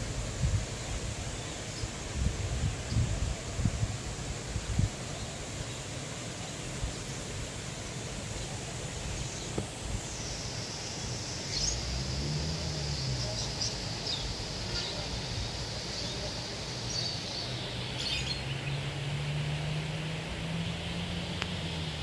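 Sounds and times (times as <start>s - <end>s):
steady outdoor hiss: 0.0s - 22.0s
birds chirping: 4.6s - 22.0s.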